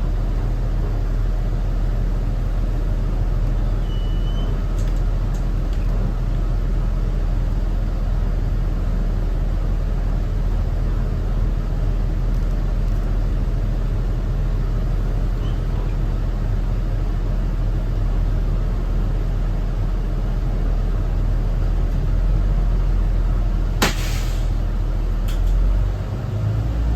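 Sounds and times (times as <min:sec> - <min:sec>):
bus diesel engine rumble: 0:00.0 - 0:26.9.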